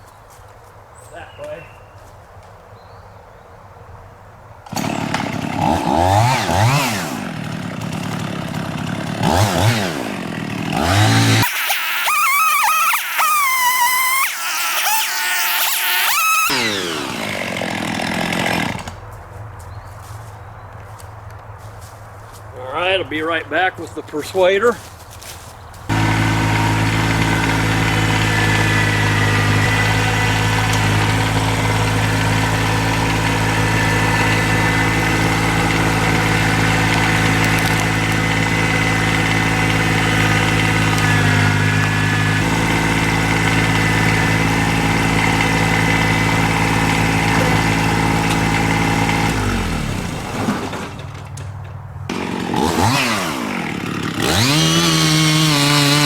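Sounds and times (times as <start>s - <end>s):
small engine running: 4.7s - 19.0s, 25.9s - 51.2s, 52.1s - 56.0s.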